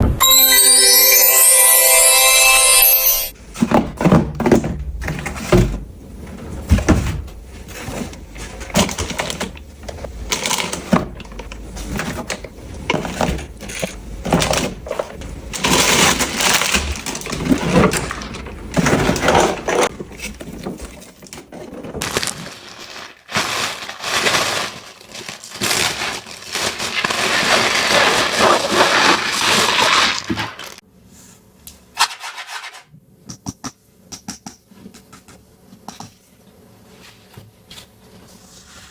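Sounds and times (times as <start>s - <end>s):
toy packaging crinkling: 22.0s - 30.8s.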